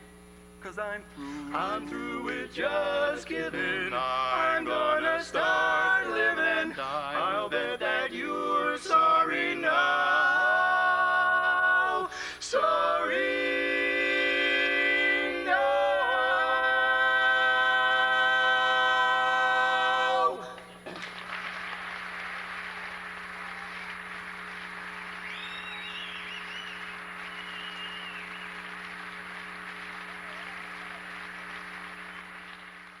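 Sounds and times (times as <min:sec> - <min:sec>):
vocal quartet holding a chord: 0:00.8 - 0:20.8
audience whistling: 0:01.2 - 0:02.4, 0:21.5 - 0:33.0
audience applause: 0:20.9 - 0:33.0.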